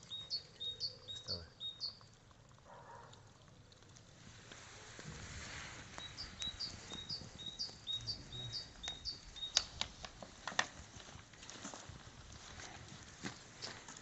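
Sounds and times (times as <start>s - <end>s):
sharp clicks: 8.8s - 10.7s.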